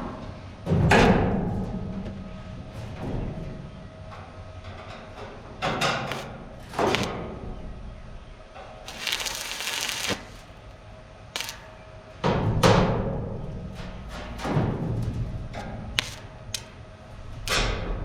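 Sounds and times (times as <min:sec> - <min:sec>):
hissing rush: 0:06.1 - 0:07.1, 0:08.9 - 0:10.6, 0:11.4 - 0:11.7, 0:16.0 - 0:16.7.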